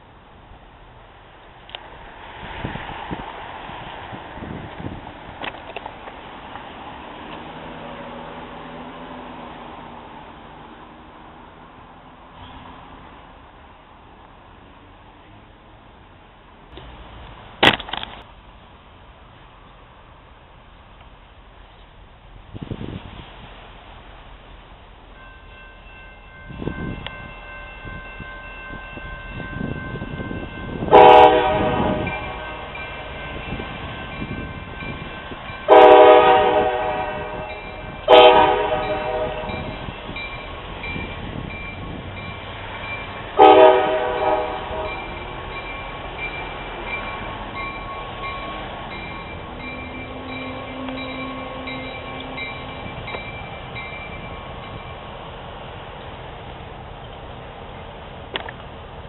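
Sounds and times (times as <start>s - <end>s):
passing train rumble: 0.0s - 59.0s
railroad crossing bell ringing: 25.1s - 55.3s
locomotive air horn blasts: 30.8s - 32.8s, 35.7s - 39.8s, 43.4s - 45.3s, 49.6s - 52.9s.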